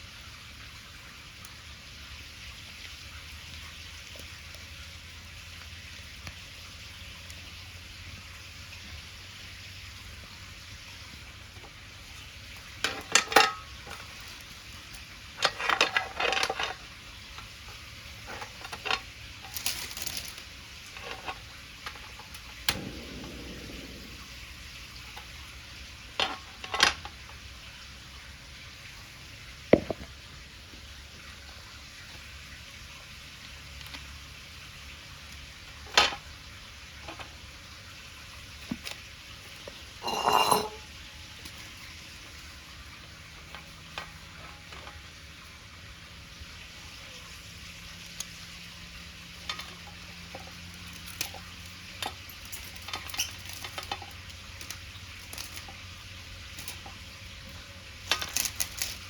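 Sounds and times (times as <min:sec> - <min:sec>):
bonfire crackling: 0:00.8 - 0:11.2, 0:19.0 - 0:30.5.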